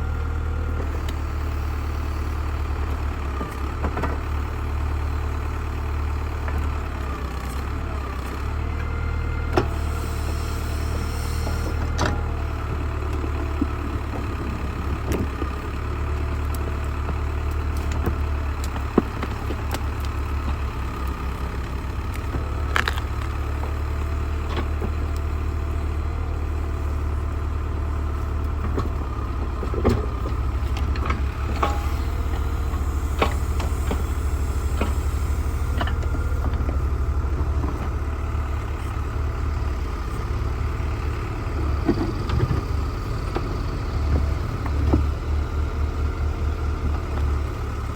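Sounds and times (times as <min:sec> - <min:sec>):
backhoe engine running: 0:00.0 - 0:47.9
digging knocks and clanks: 0:28.6 - 0:38.1.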